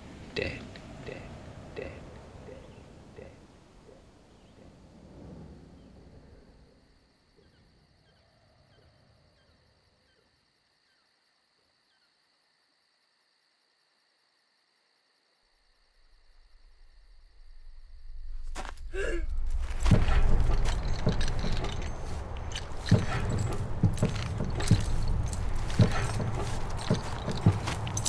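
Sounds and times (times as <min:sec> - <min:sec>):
crickets chirping: 0:00.0 - 0:28.0
low rumble: 0:17.4 - 0:28.0.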